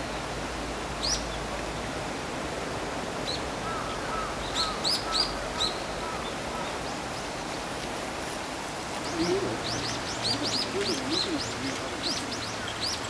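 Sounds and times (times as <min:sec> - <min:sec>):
steady outdoor hiss: 0:00.0 - 0:13.0
low bird warbling: 0:09.0 - 0:13.0.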